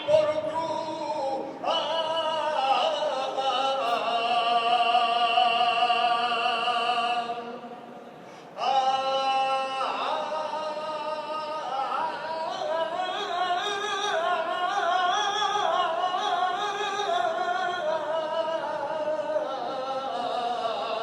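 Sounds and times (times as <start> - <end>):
solo voice singing unaccompanied: 0.0 - 7.7.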